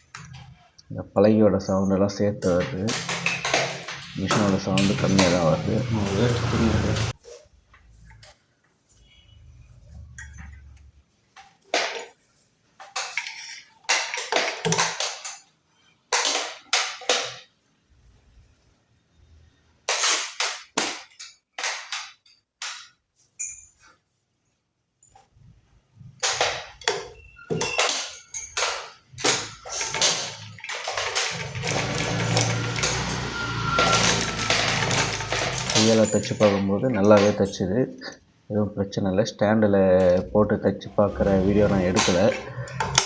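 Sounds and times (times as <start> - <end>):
sewing machine metallic knocks: 27.6 - 37.4.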